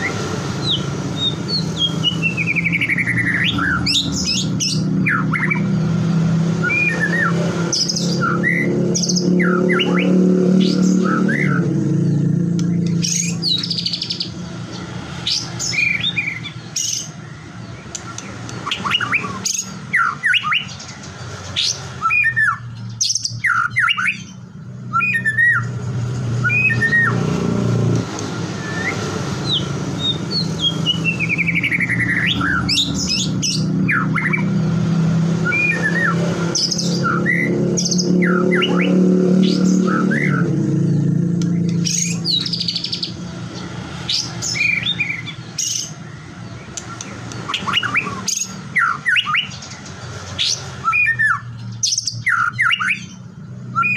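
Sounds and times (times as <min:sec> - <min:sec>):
bird singing varied whistles: 0:06.6 - 0:11.6, 0:21.6 - 0:25.7, 0:26.4 - 0:27.2, 0:28.5 - 0:34.5, 0:35.4 - 0:40.5, 0:46.8 - 0:49.6, 0:50.4 - 0:53.9.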